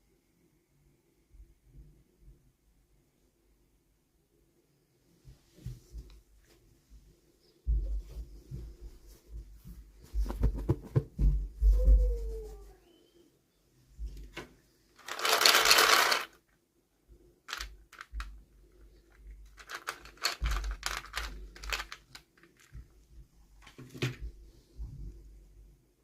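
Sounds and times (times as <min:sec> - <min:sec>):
plastic pieces clicking: 0:15.0 - 0:16.4, 0:17.5 - 0:18.4, 0:19.1 - 0:22.8
wrapping rustling: 0:15.0 - 0:16.4, 0:17.5 - 0:22.9.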